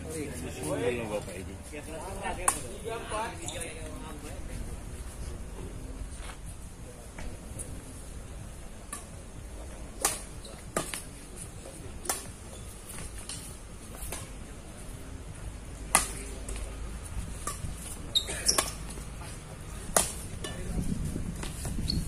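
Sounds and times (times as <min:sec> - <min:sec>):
rackets hitting shuttlecock: 0:02.3 - 0:02.7, 0:10.0 - 0:11.1, 0:12.0 - 0:14.3, 0:15.8 - 0:16.7, 0:17.3 - 0:19.0, 0:19.9 - 0:20.7
wind rumbling on microphone: 0:19.4 - 0:22.0.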